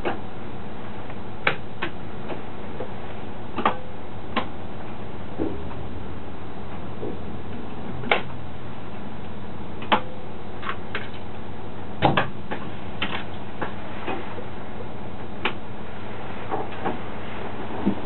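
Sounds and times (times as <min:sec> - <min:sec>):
sharp clicks and knocks: 0:03.6 - 0:03.8, 0:07.0 - 0:08.4.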